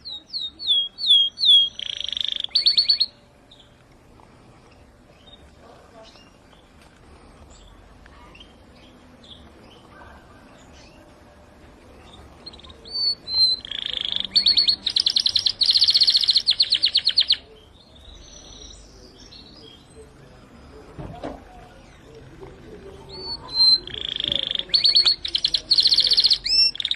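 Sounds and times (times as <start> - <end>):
canary singing: 0.0 - 3.8, 7.5 - 11.4, 12.0 - 20.3, 21.7 - 26.9.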